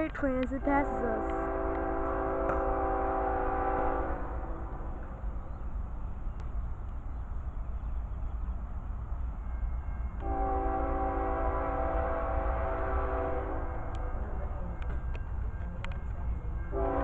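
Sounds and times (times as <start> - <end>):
low rumble of passing train: 0.0 - 17.0
train air horn blasts: 0.8 - 5.2, 10.2 - 14.2, 16.7 - 17.0.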